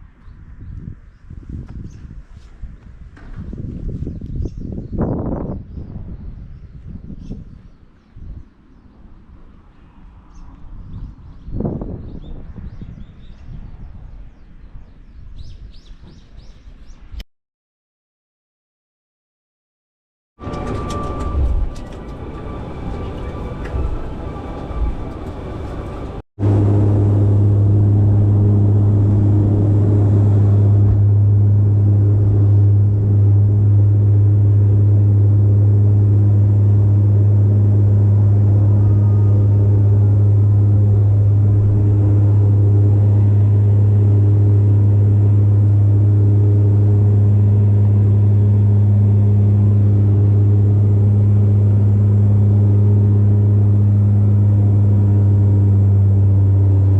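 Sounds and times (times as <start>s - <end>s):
vehicle drone: 20.4s - 56.9s.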